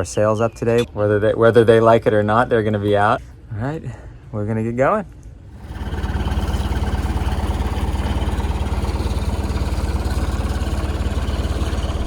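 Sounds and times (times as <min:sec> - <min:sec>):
boat engine idling: 0:05.5 - 0:12.0.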